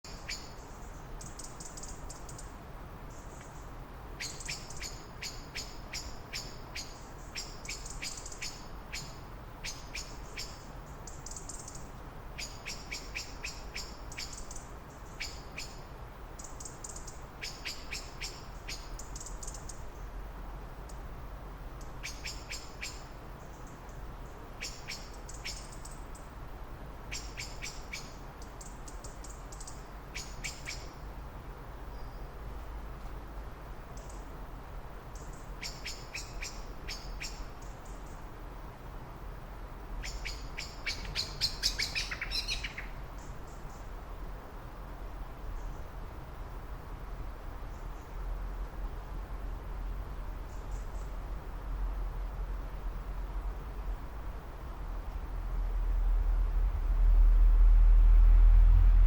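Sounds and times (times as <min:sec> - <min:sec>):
small birds chirping: 0:00.0 - 0:20.2, 0:21.8 - 0:26.3, 0:27.1 - 0:31.1, 0:35.1 - 0:38.3, 0:40.0 - 0:44.0, 0:50.4 - 0:51.2
low background rumble: 0:42.1 - 0:59.0.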